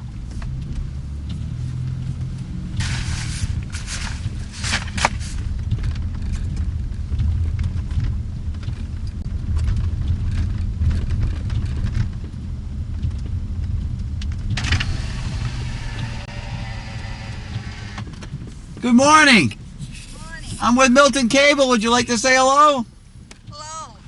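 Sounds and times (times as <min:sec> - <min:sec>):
car driving slowly: 0:00.0 - 0:24.0
broad hiss: 0:02.8 - 0:05.3.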